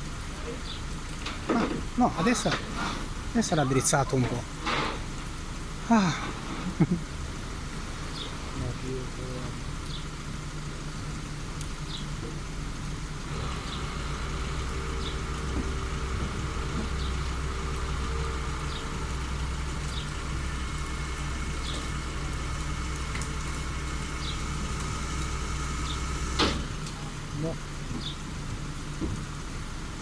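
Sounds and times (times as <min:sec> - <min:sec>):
vehicle engine idling: 0:00.0 - 0:30.0
faint ticking: 0:07.1 - 0:29.5.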